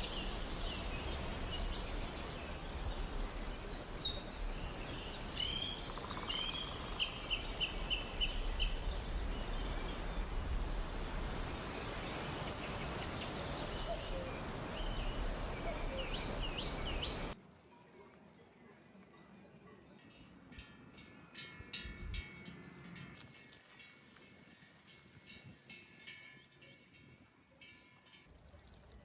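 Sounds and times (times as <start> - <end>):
songbirds chirping and singing: 0.0 - 17.4.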